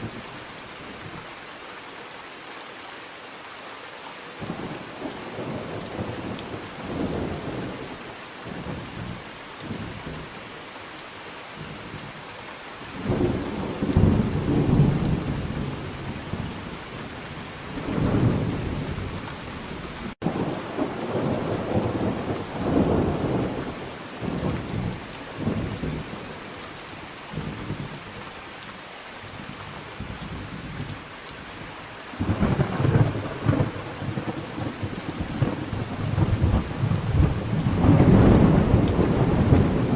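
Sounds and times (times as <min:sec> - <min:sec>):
heavy rain: 0:00.0 - 0:39.9
thunder rolling: 0:32.2 - 0:39.9.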